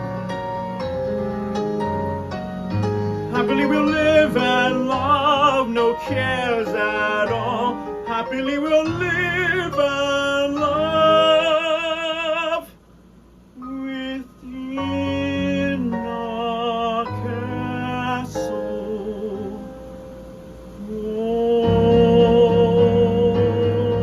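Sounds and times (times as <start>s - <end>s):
musical accompaniment: 0.0s - 11.8s, 17.0s - 24.0s.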